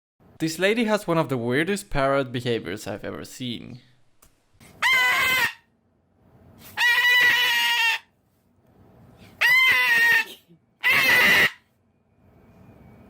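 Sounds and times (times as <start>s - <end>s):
parrot screeching: 4.8s - 5.7s, 6.6s - 8.1s, 9.4s - 11.7s.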